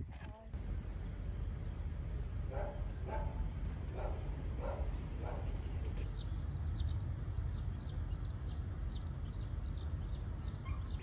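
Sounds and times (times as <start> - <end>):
low outdoor rumble: 0.0 - 11.0
small bird chirping: 6.0 - 11.0.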